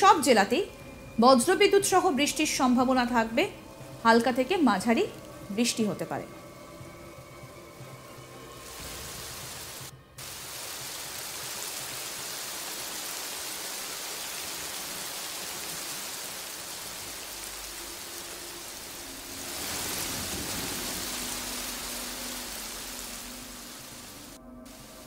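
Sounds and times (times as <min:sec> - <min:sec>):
rain falling on water: 0:08.6 - 0:25.0.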